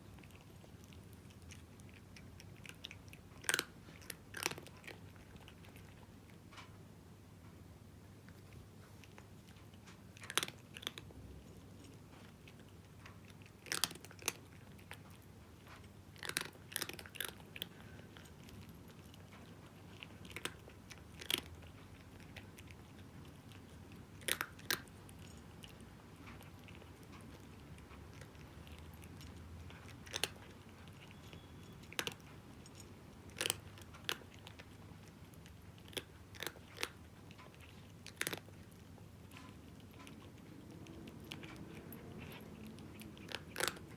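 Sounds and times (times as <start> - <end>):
cat crunching dry kibble: 0.0 - 6.8, 8.1 - 43.9.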